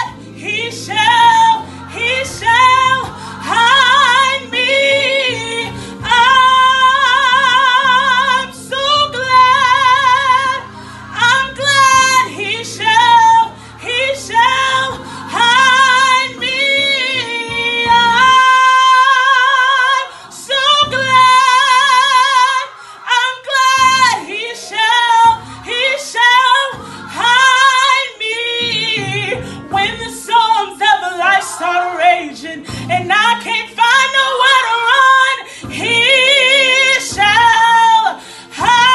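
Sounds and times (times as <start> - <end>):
low instrumental chords: 0.0 - 19.3
woman singing gospel: 0.0 - 38.9.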